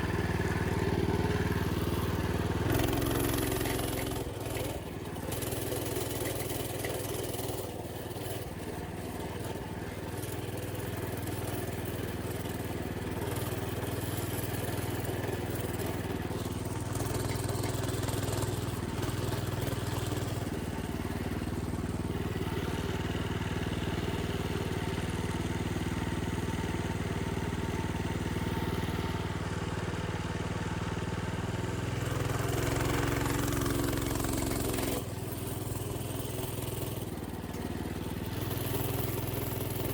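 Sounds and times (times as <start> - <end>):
minibike engine running: 0.0 - 39.9.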